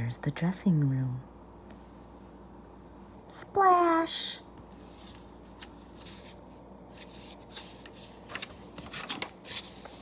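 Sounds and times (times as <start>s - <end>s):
paper pages rustling: 4.7s - 10.0s.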